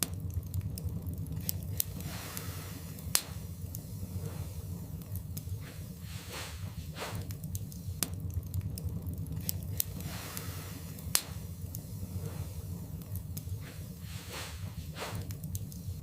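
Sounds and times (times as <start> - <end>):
low rumble: 0.0 - 16.0
wood fire crackling: 0.0 - 16.0.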